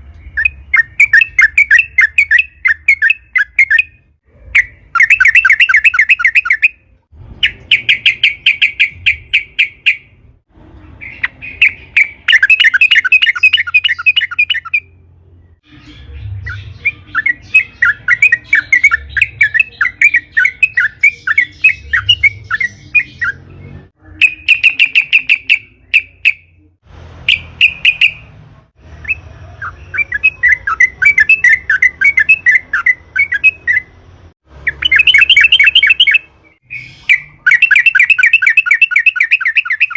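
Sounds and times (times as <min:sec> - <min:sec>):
bulbul singing chattering notes: 0:11.0 - 0:14.9, 0:16.4 - 0:23.4, 0:24.0 - 0:26.6, 0:34.6 - 0:39.9.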